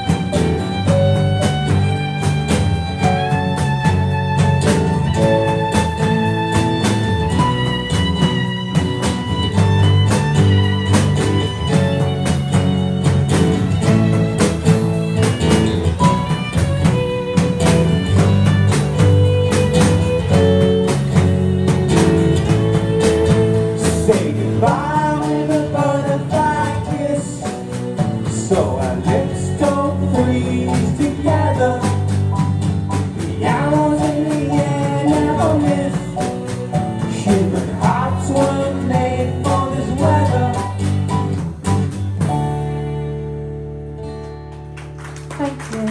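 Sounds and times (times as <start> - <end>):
live band with guitars and percussion: 0.0 - 45.9
wordless singing: 23.8 - 27.6, 37.1 - 40.8.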